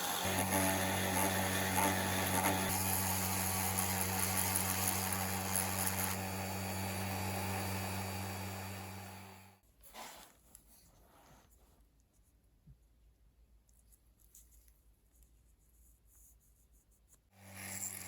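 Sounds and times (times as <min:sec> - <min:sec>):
electric power tool grinding: 0:00.0 - 0:09.6, 0:17.4 - 0:18.0.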